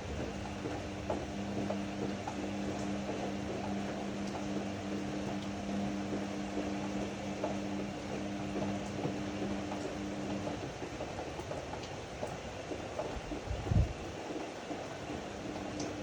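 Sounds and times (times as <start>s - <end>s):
washer-dryer motor hum: 0.0s - 16.0s.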